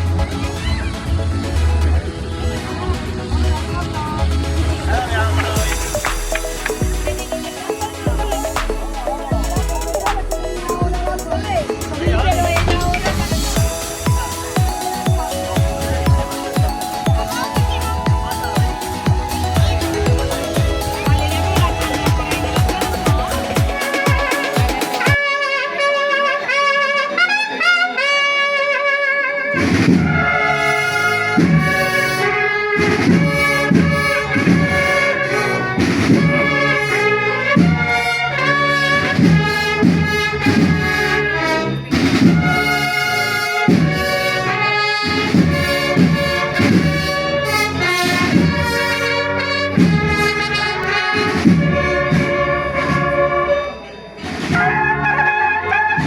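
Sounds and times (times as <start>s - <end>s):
steady beat with bass line: 3.3s - 25.2s
trumpets playing a melody: 5.0s - 56.0s.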